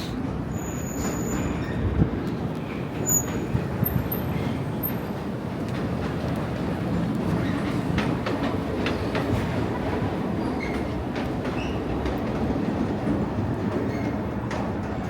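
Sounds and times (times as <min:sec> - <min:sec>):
low rumble of heavy traffic: 0:00.0 - 0:08.8.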